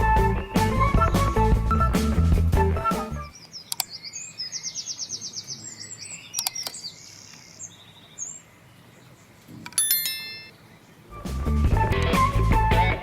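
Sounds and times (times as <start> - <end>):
small birds chirping: 3.2 - 11.4
click: 3.4 - 3.9, 6.4 - 6.8.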